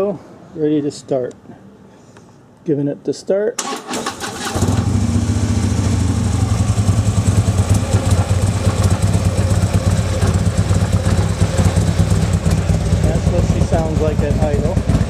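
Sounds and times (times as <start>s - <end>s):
engine starter: 3.6s - 6.1s
motorcycle engine idling: 4.5s - 15.0s.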